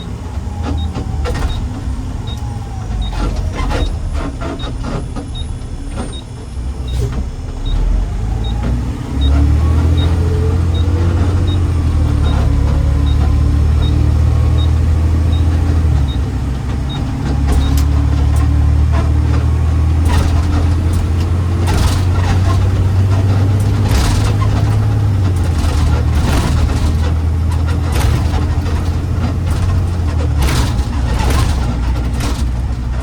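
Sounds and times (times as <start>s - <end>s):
garbage truck engine droning: 0.0s - 33.0s
sharp rattles and knocks: 9.8s - 33.0s.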